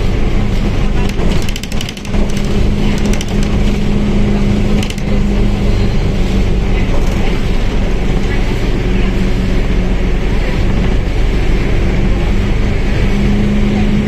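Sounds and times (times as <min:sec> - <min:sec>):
bus engine drone: 0:00.0 - 0:14.0
rapid clicking rattles: 0:00.9 - 0:04.0, 0:04.6 - 0:05.4.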